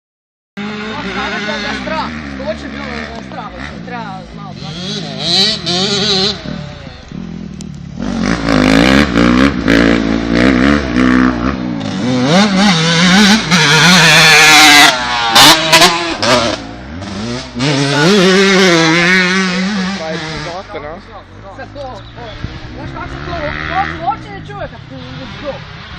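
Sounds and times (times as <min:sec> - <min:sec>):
motocross bike engines revving: 0:00.6 - 0:25.9.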